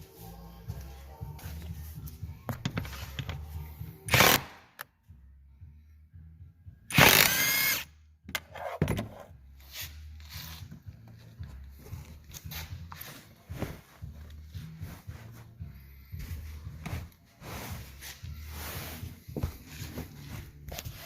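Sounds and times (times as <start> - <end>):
power tool whirring: 6.9 - 7.9.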